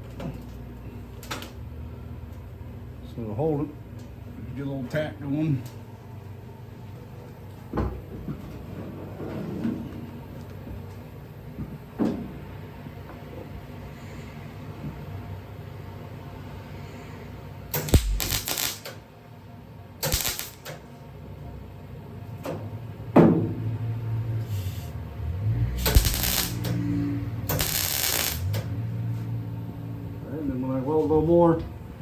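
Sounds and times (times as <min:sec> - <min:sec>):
welding arc crackle: 0:17.7 - 0:19.0, 0:20.0 - 0:20.8, 0:25.8 - 0:26.8, 0:27.4 - 0:28.7.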